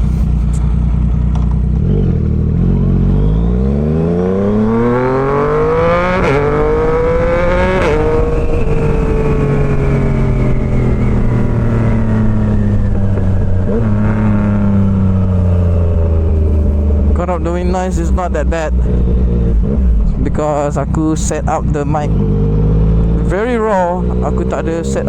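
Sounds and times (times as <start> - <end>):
motorcycle engine accelerating: 0.0 - 25.0
wind noise on microphone: 3.9 - 18.1.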